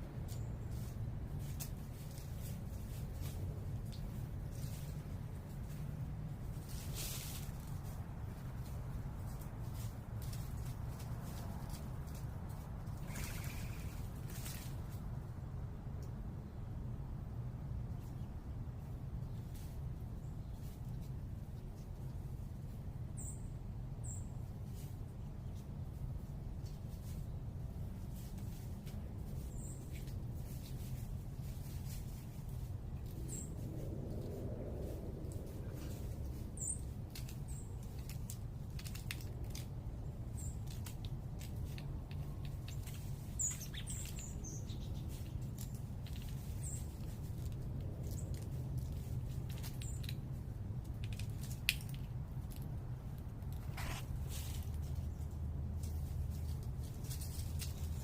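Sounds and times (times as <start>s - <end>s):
small birds chipping: 0.0s - 15.0s, 17.7s - 58.0s
low urban rumble: 0.0s - 58.0s
small bird chirping: 12.9s - 14.6s, 23.2s - 24.3s, 35.7s - 38.1s, 42.3s - 47.2s.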